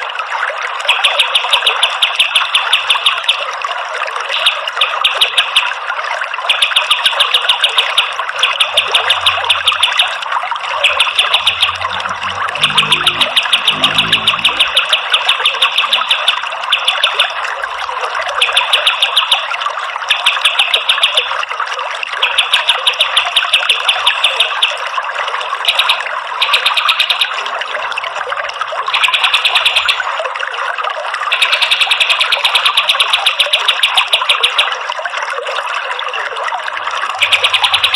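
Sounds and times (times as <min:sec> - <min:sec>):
running water: 0:00.0 - 0:37.9
songbird rapid high notes: 0:08.0 - 0:10.2, 0:10.8 - 0:15.6.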